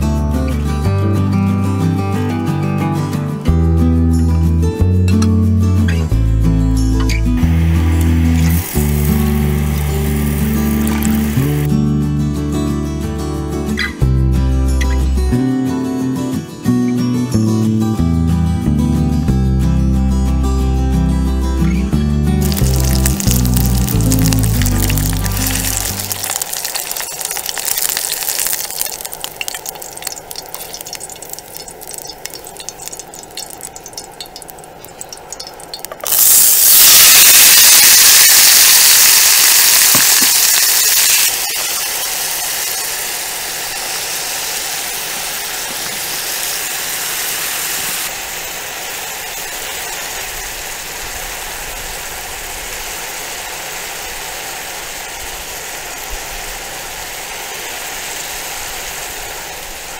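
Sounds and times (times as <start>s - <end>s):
food frying in hot oil: 7.4s - 11.7s, 22.4s - 59.9s.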